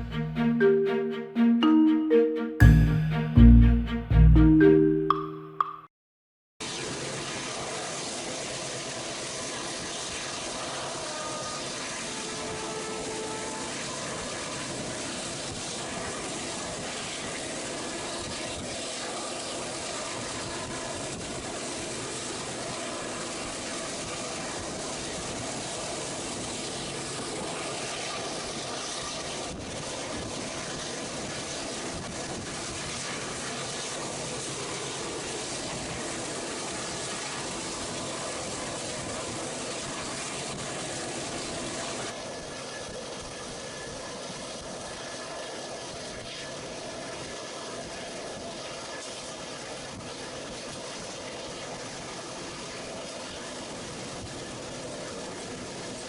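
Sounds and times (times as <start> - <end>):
passenger train on track: 0.0 - 5.8, 6.8 - 42.7.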